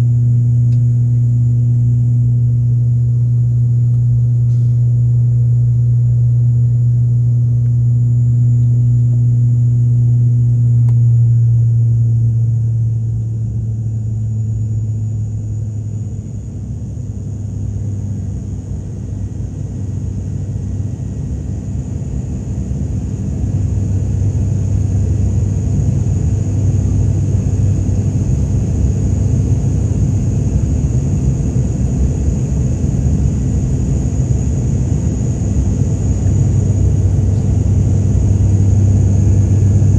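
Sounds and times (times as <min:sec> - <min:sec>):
aircraft engines droning: 0:11.5 - 0:39.9.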